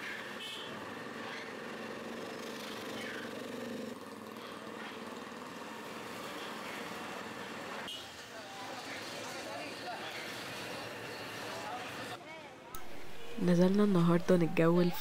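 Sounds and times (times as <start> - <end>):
small motorcycle engine running: 0.0 - 7.8.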